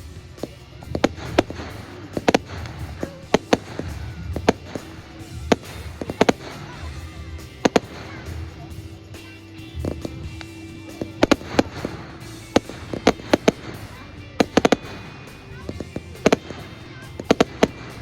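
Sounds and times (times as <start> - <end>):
fireworks bangs: 0.0 - 18.0
music playing: 0.0 - 18.0.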